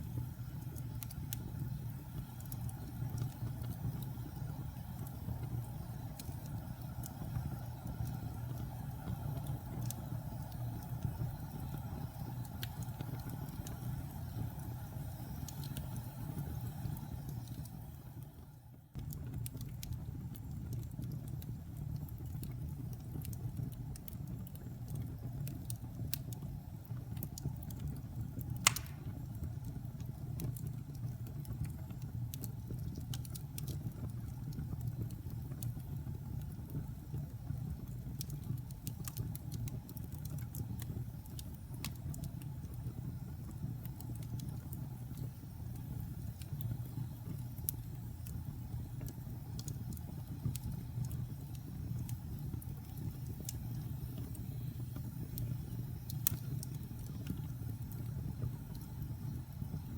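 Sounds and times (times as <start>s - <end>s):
wood fire crackling: 0.0s - 59.9s
loud sharp pop: 28.7s - 29.1s.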